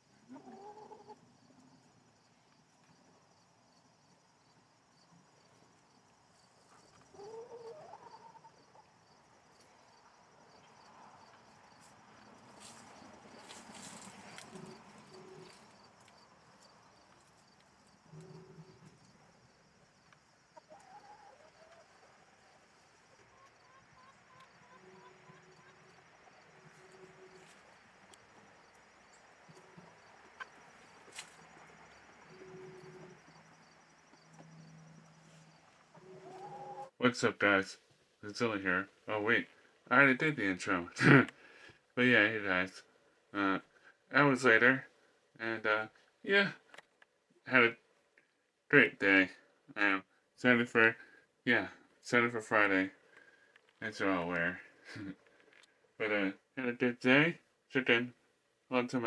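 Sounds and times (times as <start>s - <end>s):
faint high-pitched chirping: 0.1s - 36.9s
chickens calling: 0.2s - 1.2s, 6.6s - 8.9s, 12.5s - 17.1s, 20.6s - 28.8s, 29.4s - 34.6s, 35.4s - 36.9s
faint bird call: 23.2s - 27.7s, 29.5s - 33.4s.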